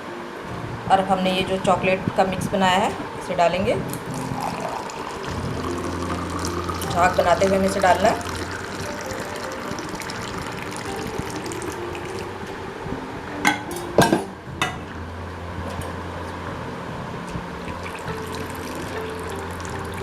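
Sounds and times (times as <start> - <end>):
liquid pouring into a glass: 3.9 - 12.5, 17.6 - 20.0.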